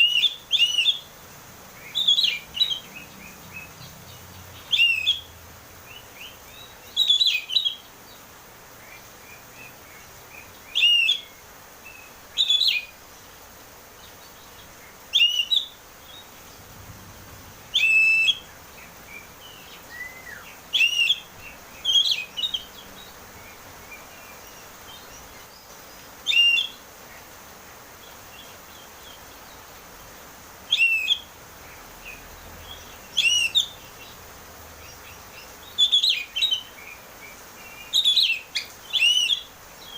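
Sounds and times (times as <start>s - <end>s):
bird singing whistled phrases: 0.0s - 1.1s, 1.9s - 2.8s, 4.6s - 5.3s, 5.9s - 7.8s, 10.7s - 12.9s, 15.2s - 15.8s, 17.7s - 18.4s, 19.5s - 22.7s, 26.3s - 26.8s, 30.7s - 31.3s, 33.1s - 33.8s, 35.7s - 36.7s, 37.8s - 39.9s.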